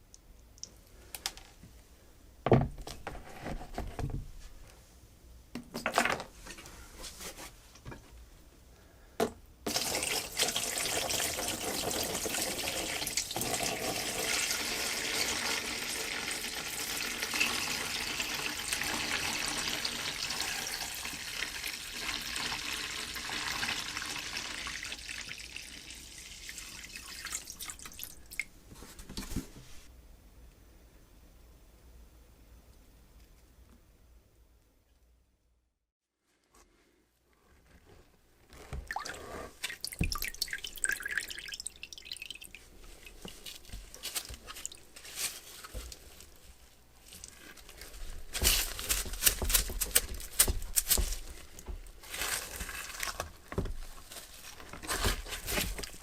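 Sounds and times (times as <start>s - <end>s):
water running from a tap: 9.7s - 28.4s, 39.7s - 42.5s.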